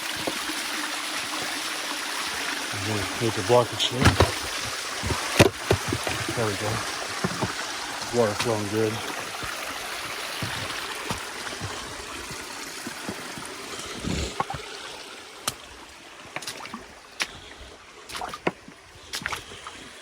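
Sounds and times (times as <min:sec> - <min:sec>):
creek water flowing: 0:00.0 - 0:20.0
dull knock: 0:04.0 - 0:06.4.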